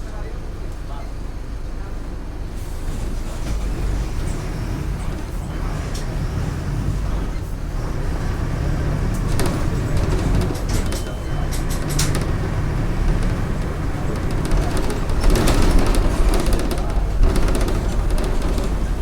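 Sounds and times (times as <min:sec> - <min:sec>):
bus diesel engine running: 0:00.0 - 0:19.0
short rattles: 0:09.0 - 0:19.0.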